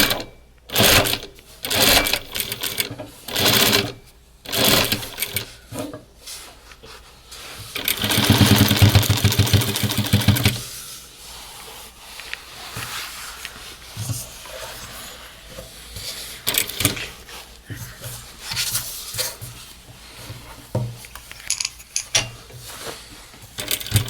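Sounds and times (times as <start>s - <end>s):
industrial sewing machine stitching: 0.0s - 5.5s, 7.8s - 10.7s, 16.4s - 17.2s, 23.6s - 24.0s.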